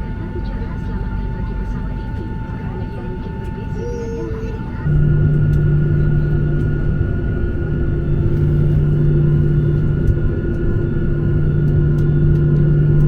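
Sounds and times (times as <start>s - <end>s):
jet engines roaring in cabin: 0.0s - 13.0s.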